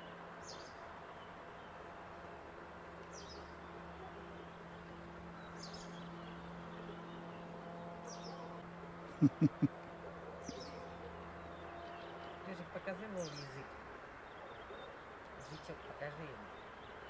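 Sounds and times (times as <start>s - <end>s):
steady low hum: 1.4s - 12.5s
bird calling: 9.1s - 11.2s
quick loud low sounds: 9.2s - 9.7s.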